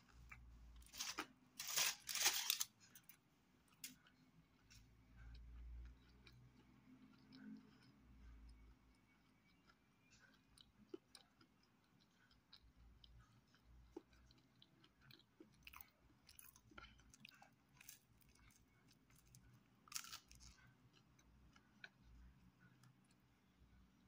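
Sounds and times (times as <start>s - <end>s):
chewing pizza: 0.0s - 24.0s
crunching: 0.1s - 3.2s, 15.1s - 20.7s.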